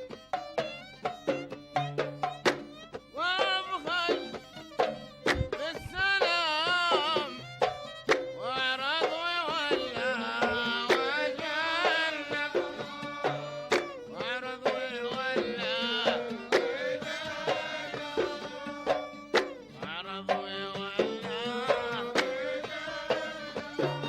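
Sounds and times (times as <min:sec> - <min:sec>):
hand drum strikes: 0:00.0 - 0:24.0.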